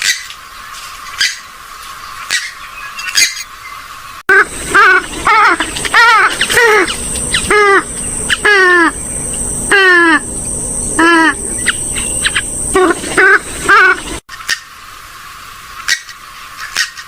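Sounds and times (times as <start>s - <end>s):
harsh waterbird calls: 2.2s - 14.9s.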